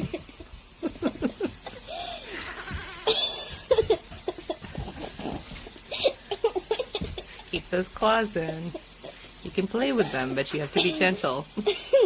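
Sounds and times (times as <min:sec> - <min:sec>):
baby goats bleating: 0:02.0 - 0:03.9.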